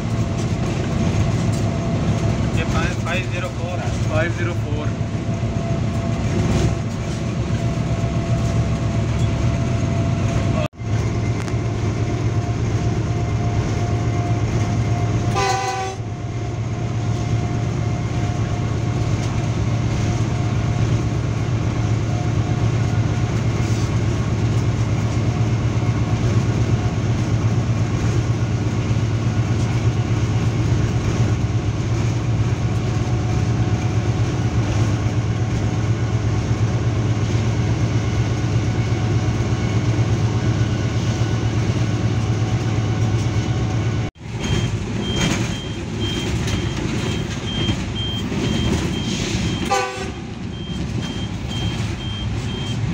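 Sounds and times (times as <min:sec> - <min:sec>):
locomotive engine drone: 0:00.0 - 0:52.9
track rumble: 0:00.0 - 0:52.9
train horn blast: 0:15.2 - 0:16.1, 0:49.6 - 0:50.4.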